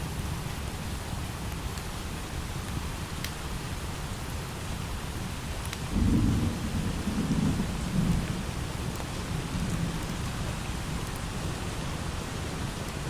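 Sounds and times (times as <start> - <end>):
thunder rumbling: 6.0 - 8.6.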